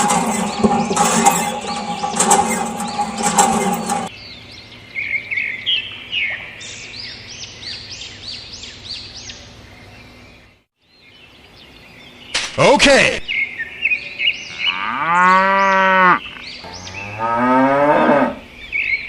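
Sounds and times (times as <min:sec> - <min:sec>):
loud steady hum with clicks: 0:00.0 - 0:04.1
bird chirping: 0:00.0 - 0:12.5, 0:13.3 - 0:17.4, 0:18.5 - 0:19.0.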